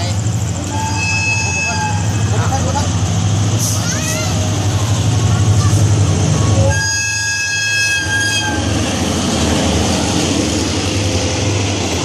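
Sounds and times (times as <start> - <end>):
passing train rumbling: 0.0 - 12.0
train horn: 0.7 - 2.2, 6.7 - 8.7.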